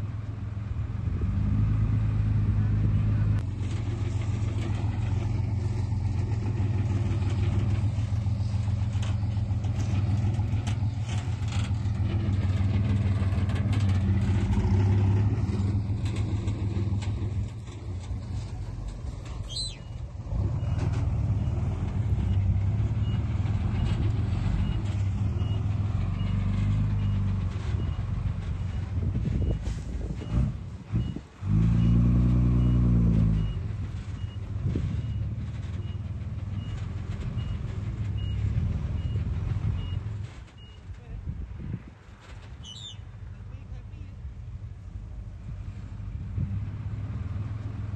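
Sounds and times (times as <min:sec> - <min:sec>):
heavy diesel engine running: 0:00.0 - 0:41.2
high squeal: 0:19.3 - 0:20.0, 0:42.6 - 0:43.1.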